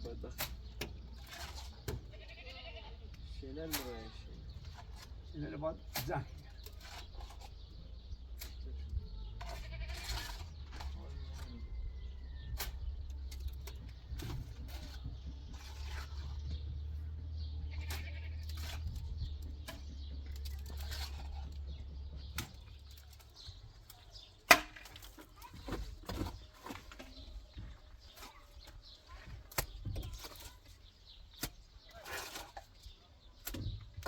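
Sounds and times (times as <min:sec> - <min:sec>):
livestock bleating: 0:02.1 - 0:03.1, 0:09.5 - 0:10.1, 0:17.6 - 0:18.5.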